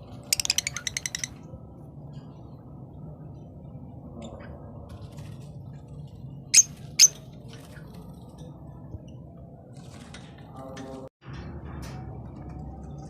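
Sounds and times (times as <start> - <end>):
low hum: 0.0 - 13.0
birds chirping: 6.5 - 7.2.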